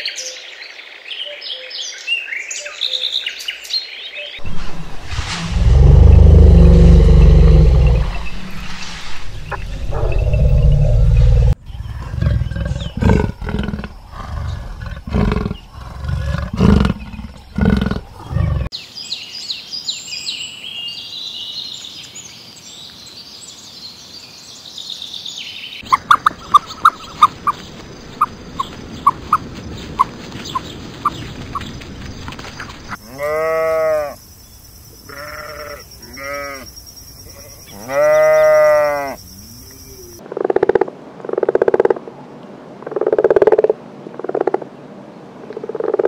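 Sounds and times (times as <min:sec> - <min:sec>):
big cat growls: 0:04.4 - 0:18.7
small birds chirping: 0:06.7 - 0:33.0
sheep bleating: 0:33.0 - 0:34.2, 0:35.1 - 0:36.7, 0:37.7 - 0:39.2.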